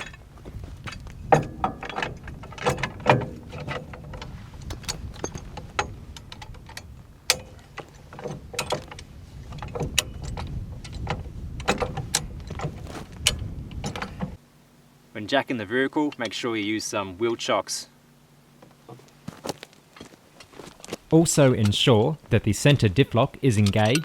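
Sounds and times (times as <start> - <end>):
jack clicking and clanking: 0.0 - 14.4, 16.0 - 16.5, 20.0 - 24.0.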